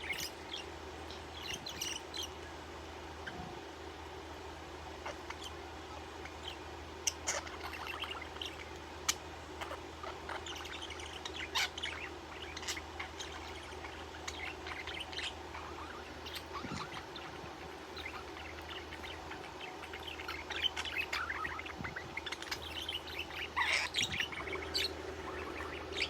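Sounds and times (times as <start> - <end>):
budgerigar chirping: 6.2 - 26.0.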